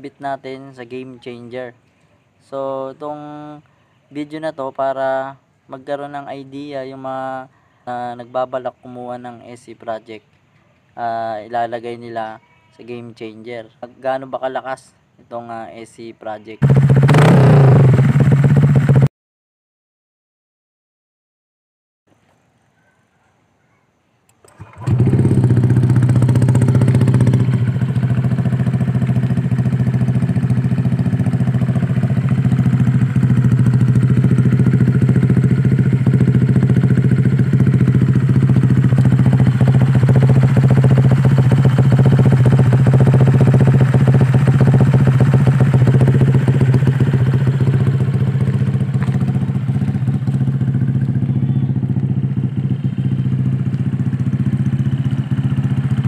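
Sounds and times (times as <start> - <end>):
scooter engine starting and idling: 16.6 - 19.1, 24.4 - 56.0.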